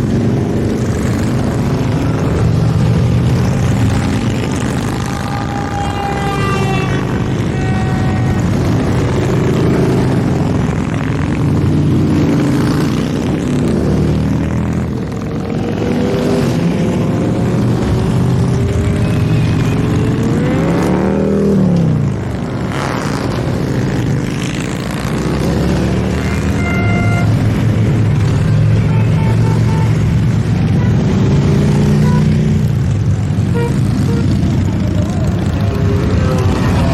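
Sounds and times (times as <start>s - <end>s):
motorcycles riding past: 0.0s - 36.9s
horn-like tones: 4.8s - 9.2s, 26.2s - 27.4s.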